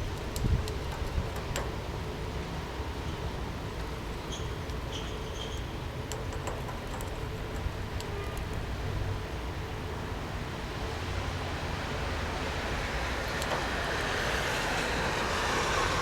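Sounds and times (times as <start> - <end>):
light clicks: 0.1 - 1.8, 5.5 - 8.7, 13.2 - 14.2.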